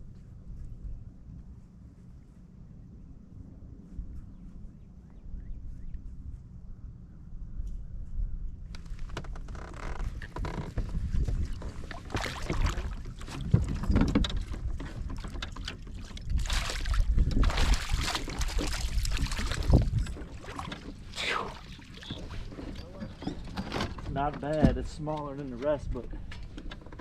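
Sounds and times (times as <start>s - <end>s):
wind buffeting microphone: 10.0s - 27.0s
water noise: 10.2s - 25.0s.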